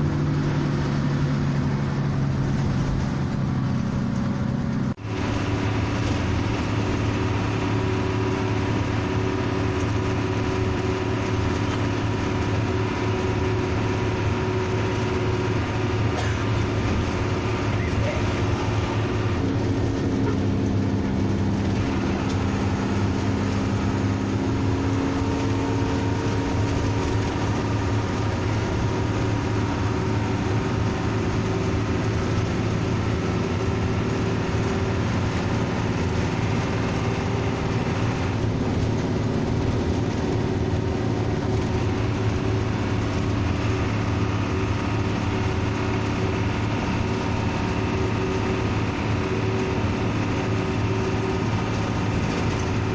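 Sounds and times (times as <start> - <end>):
bus engine droning: 0.0 - 52.9.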